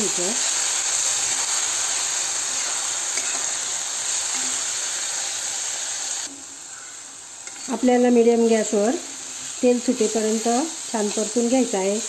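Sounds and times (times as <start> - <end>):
paste sizzling in hot oil: 0.0 - 12.0
spatula scraping pan: 2.4 - 3.7, 7.4 - 7.8.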